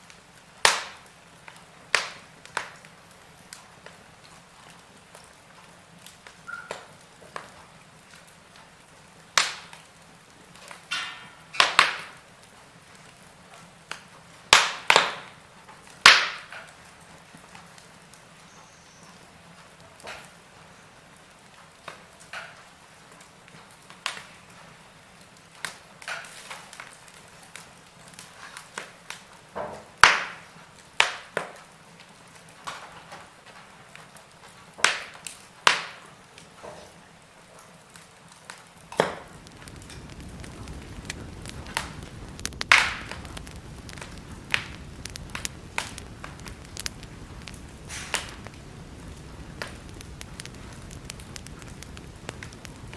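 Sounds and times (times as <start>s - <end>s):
wood fire crackling: 0.0s - 18.5s, 19.1s - 36.5s, 37.4s - 52.9s
hiss of flames: 39.0s - 52.9s.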